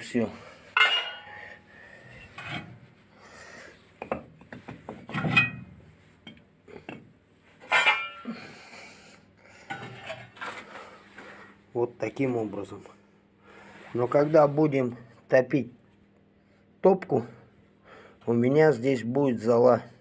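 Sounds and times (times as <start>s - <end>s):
metal part scraping in stove: 0.8s - 1.4s, 2.3s - 2.8s, 5.0s - 5.7s, 7.6s - 8.3s, 9.7s - 10.7s
ringing metal clanks: 0.8s - 1.6s, 5.2s - 5.7s, 7.7s - 8.4s.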